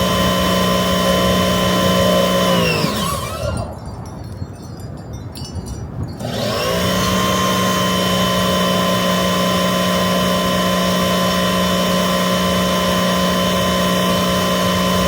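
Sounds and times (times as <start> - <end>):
electric motor tool whining: 0.0 - 3.8, 6.2 - 15.0.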